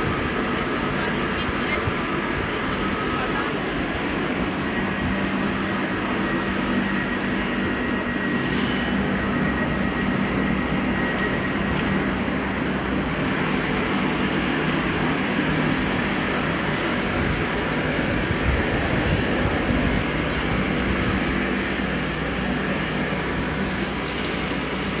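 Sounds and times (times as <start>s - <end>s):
electric train humming: 0.0s - 25.0s.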